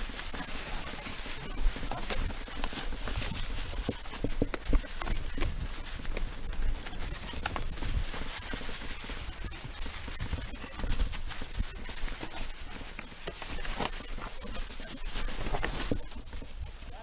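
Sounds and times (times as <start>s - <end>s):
bike chain and frame rattling: 0.0s - 17.0s
wind rumble on microphone: 0.0s - 17.0s
bike tyres knocking on stones: 1.7s - 11.6s.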